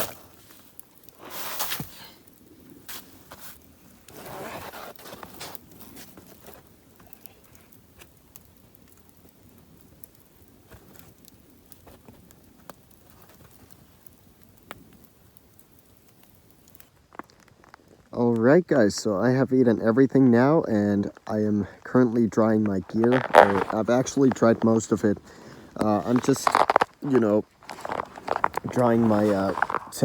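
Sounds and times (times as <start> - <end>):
campfire crackling: 0.0 - 30.0
rustling handling noises: 22.5 - 30.0.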